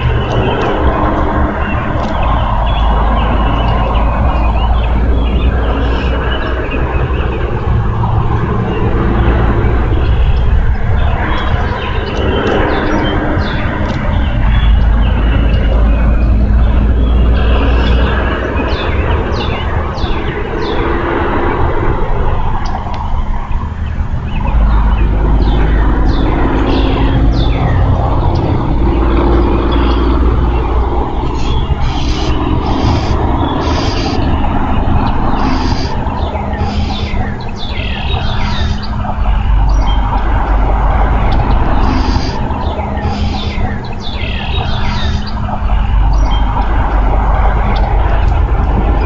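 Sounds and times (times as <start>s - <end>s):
birds chirping: 0.0s - 49.0s
low rumble of wind: 0.0s - 49.0s
harsh high bird calls: 22.6s - 49.0s.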